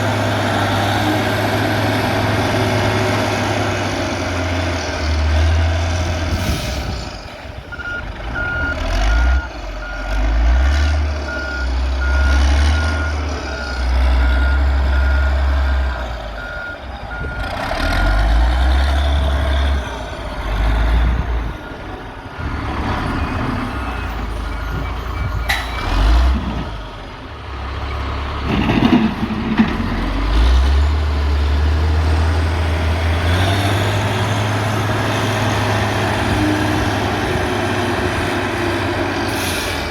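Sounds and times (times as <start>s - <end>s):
diesel machinery engine: 0.0s - 39.9s
reversing alarm beeping: 7.7s - 10.3s, 11.2s - 18.2s, 19.8s - 26.1s.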